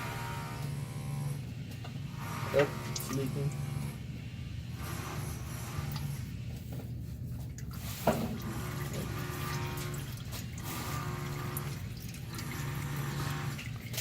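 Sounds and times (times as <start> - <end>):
oil dripping into a pan: 9.8 - 14.0.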